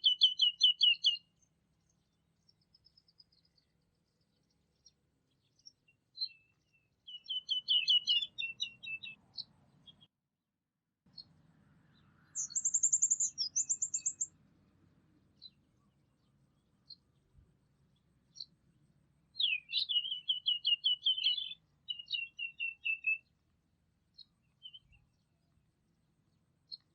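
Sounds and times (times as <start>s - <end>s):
bird chirps: 0.0s - 10.1s, 11.1s - 14.4s, 15.3s - 18.6s, 19.3s - 23.4s, 24.1s - 25.6s, 26.3s - 26.9s
songbirds singing: 0.0s - 10.1s, 11.1s - 26.9s
high rapid bird trill: 12.4s - 14.3s.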